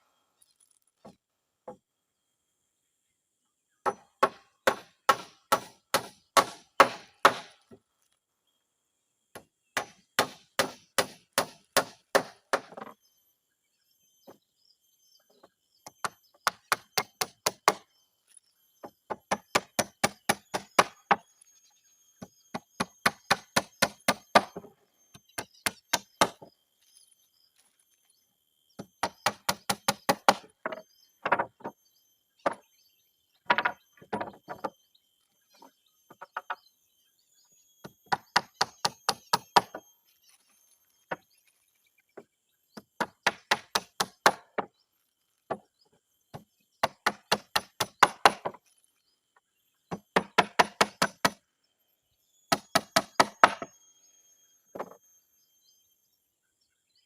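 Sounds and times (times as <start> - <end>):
hammer striking nails into wood: 3.9 - 7.6, 9.8 - 12.8, 19.1 - 21.2, 28.8 - 30.5, 43.0 - 44.7, 46.8 - 48.6, 49.9 - 51.4, 52.5 - 53.7.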